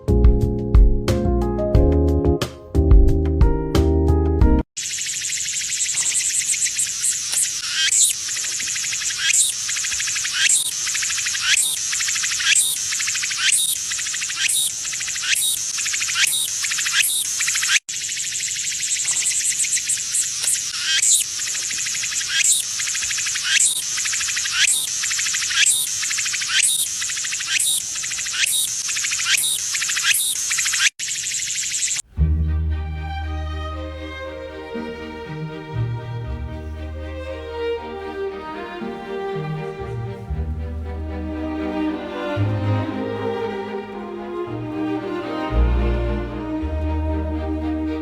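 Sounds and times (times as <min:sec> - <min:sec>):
insect chorus high trill: 0:04.8 - 0:32.0.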